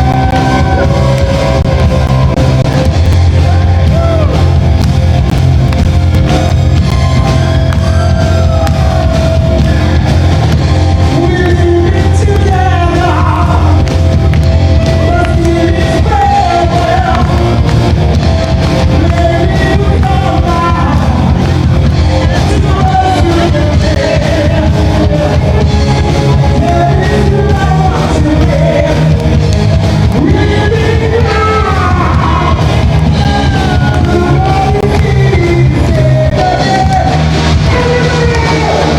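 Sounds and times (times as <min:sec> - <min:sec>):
rock band playing: 0:00.0 - 0:38.9
person singing: 0:10.8 - 0:17.8, 0:18.5 - 0:38.9.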